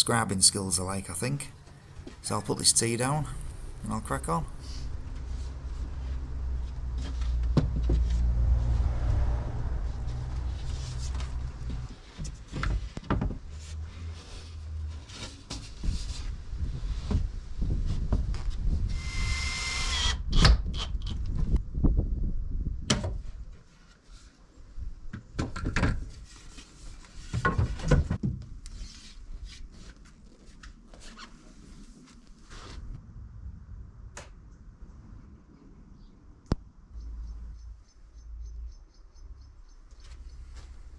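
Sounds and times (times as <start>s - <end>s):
power tool whir: 18.9s - 20.2s.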